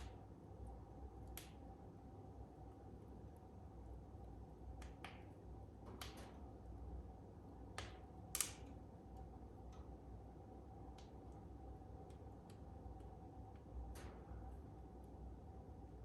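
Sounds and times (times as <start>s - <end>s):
fire crackling: 7.7s - 15.1s.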